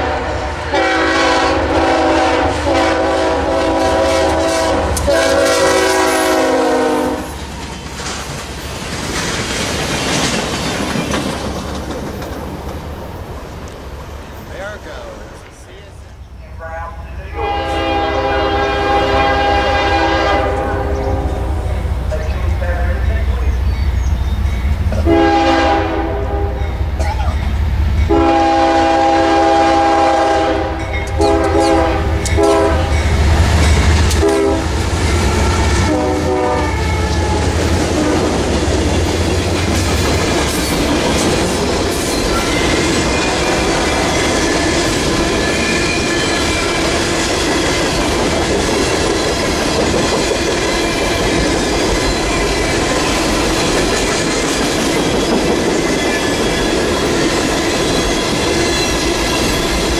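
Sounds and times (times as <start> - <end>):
train air horn blasts: 0.0 - 7.3, 17.3 - 21.7, 25.0 - 26.7, 28.1 - 33.1, 34.1 - 38.4
train wheels clattering: 3.4 - 15.9, 30.0 - 36.1, 36.7 - 59.9
locomotive engine rumble: 3.5 - 47.2.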